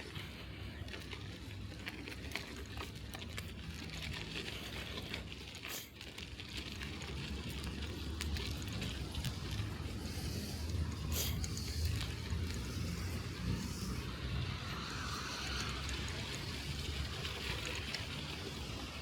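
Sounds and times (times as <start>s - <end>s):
bicycle rumbling over snow: 0.0s - 19.0s
small clicks and rattles: 0.0s - 19.0s.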